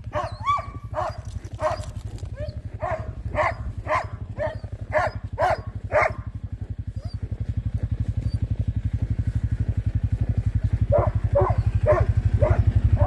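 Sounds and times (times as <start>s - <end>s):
dogs barking: 0.0s - 13.0s
small engine running: 0.0s - 13.0s.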